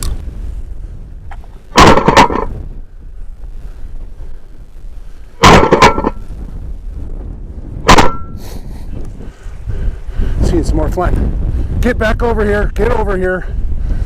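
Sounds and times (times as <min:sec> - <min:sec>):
wind buffeting microphone: 0:00.0 - 0:14.0
shotgun shots: 0:01.7 - 0:02.5, 0:05.4 - 0:06.2, 0:07.9 - 0:08.3.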